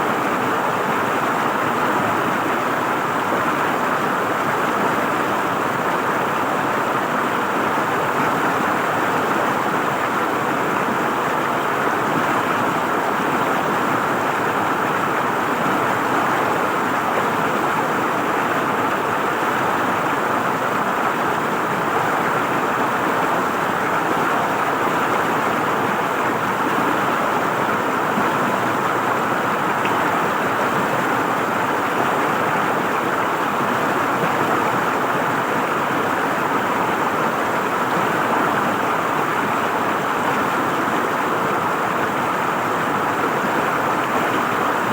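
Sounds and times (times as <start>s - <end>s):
river water gurgling over stones: 0.0s - 44.9s.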